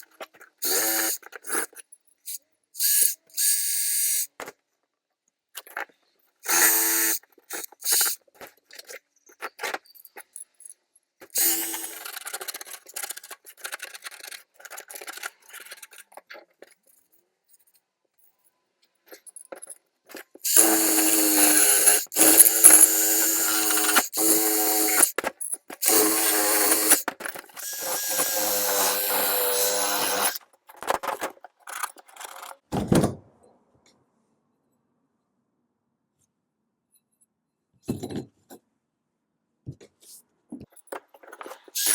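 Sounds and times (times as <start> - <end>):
small power tool motor hum: 0.6 - 1.2, 6.5 - 8.2, 11.4 - 12.1, 20.4 - 25.2, 25.8 - 30.4
clicks and handling knocks: 37.8 - 38.7, 39.7 - 41.8.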